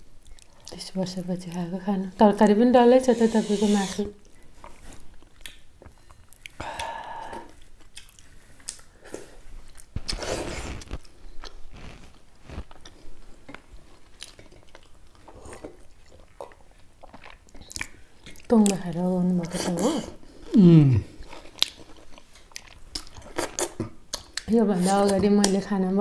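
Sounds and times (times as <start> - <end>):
wet chewing and lip smacking: 0.1 - 0.8, 4.2 - 11.6, 12.6 - 19.7, 21.2 - 25.6.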